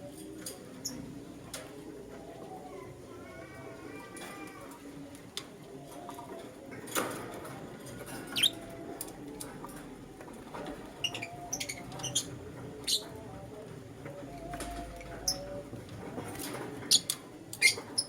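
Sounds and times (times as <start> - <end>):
lovebirds chirping: 10.9 - 13.2.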